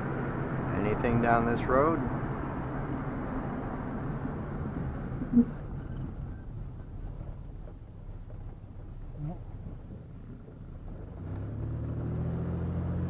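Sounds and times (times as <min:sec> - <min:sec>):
vehicle road rumble from inside: 0:00.0 - 0:13.0.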